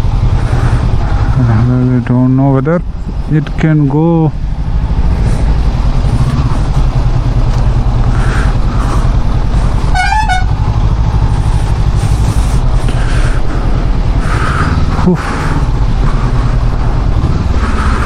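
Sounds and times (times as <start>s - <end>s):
motorcycle engine rumble: 0.0s - 18.0s
vehicle horn toot: 9.9s - 10.6s.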